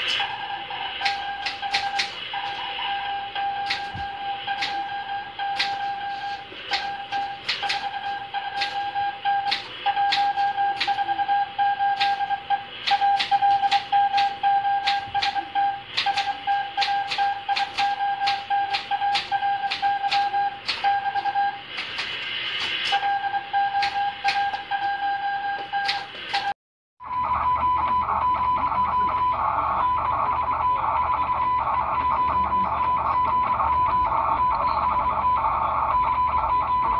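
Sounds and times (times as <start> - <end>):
radio hiss: 0.0 - 9.0, 21.2 - 24.7.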